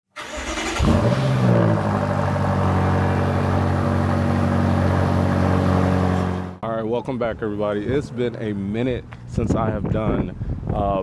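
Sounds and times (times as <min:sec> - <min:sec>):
car engine starting and idling: 0:00.1 - 0:06.6.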